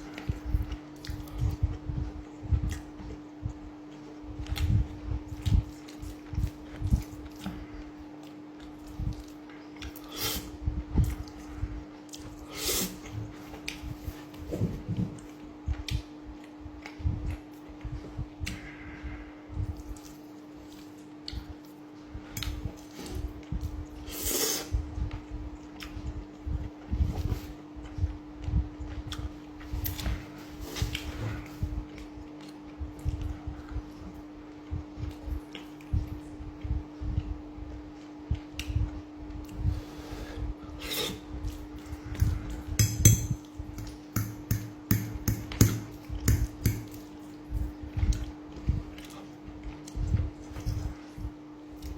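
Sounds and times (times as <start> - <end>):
steady low hum: 0.0 - 51.9
soft eating thuds: 13.0 - 23.8, 41.2 - 51.9.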